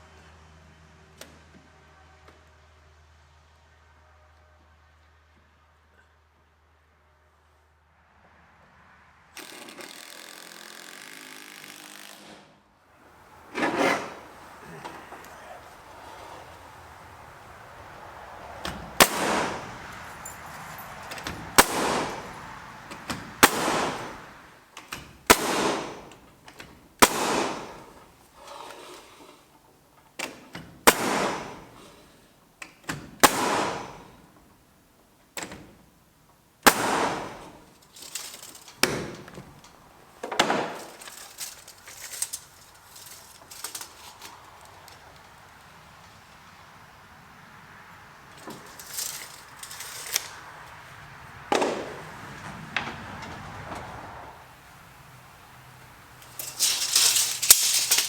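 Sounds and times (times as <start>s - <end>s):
nail gun shots: 13.6s - 16.3s, 18.6s - 19.9s, 21.2s - 22.4s, 23.0s - 26.3s, 27.0s - 28.0s, 30.8s - 31.9s, 32.9s - 34.3s, 36.6s - 37.7s, 40.3s - 41.0s, 51.5s - 52.1s.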